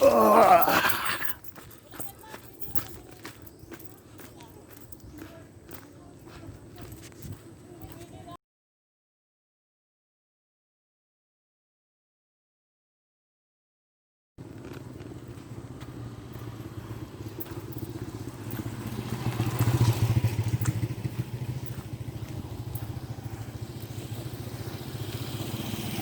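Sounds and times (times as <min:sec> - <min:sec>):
small motorcycle engine running: 0:14.4 - 0:26.0.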